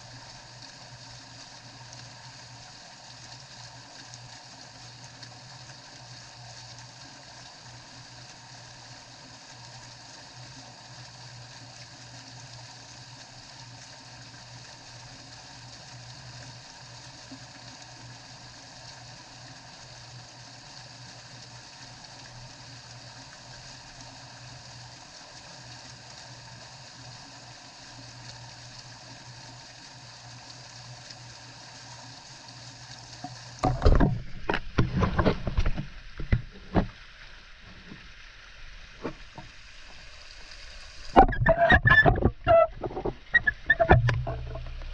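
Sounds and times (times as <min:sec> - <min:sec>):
water splashing and sloshing: 0:00.0 - 0:44.9
low steady hum: 0:27.1 - 0:44.9.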